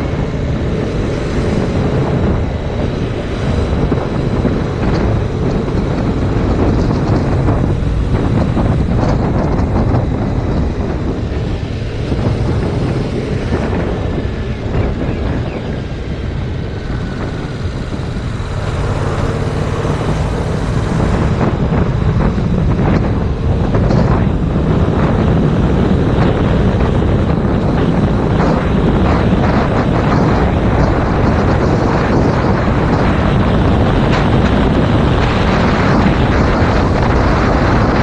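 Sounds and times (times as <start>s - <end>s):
motorcycle engine drone: 0.0s - 38.0s
wind buffeting microphone: 0.0s - 38.0s.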